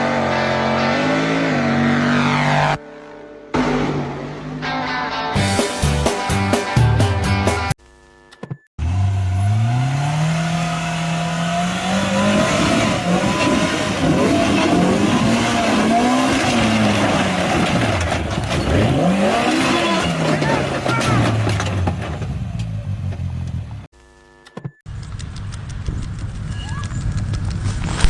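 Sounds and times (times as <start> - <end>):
vehicle engine revving: 8.8 - 17.9.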